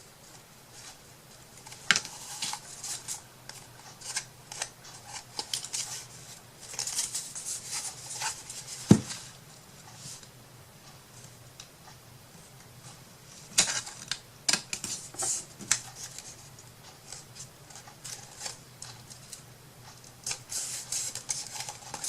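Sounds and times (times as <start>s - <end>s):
paper rustling: 0.3s - 9.3s, 20.2s - 22.0s.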